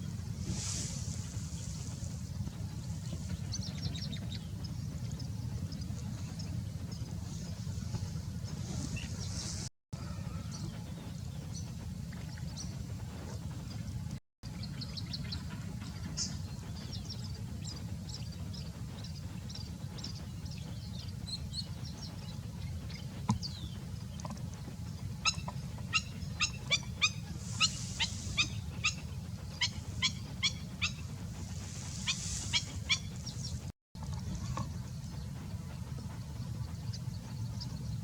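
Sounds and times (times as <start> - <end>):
bird calling loudly: 25.2 - 33.7.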